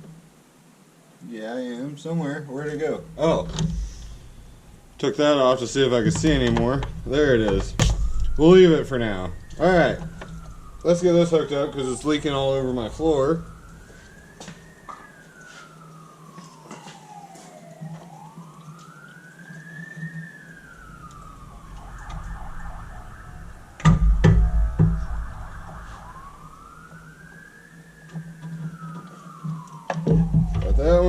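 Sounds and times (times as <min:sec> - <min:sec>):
siren wailing: 0:02.2 - 0:31.0
loud knocks: 0:06.1 - 0:08.5, 0:23.8 - 0:25.3.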